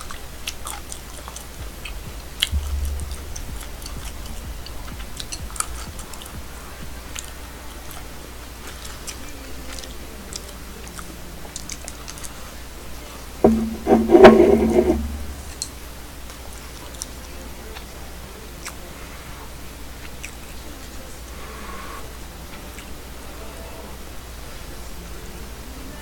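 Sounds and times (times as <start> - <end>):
low hum: 1.3 - 10.9, 13.4 - 16.0.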